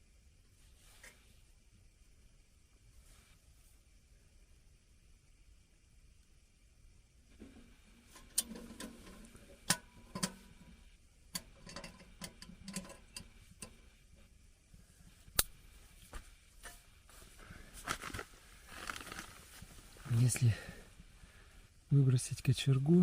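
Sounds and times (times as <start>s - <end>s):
metal parts clicking and clinking: 8.1s - 10.7s, 11.3s - 13.8s.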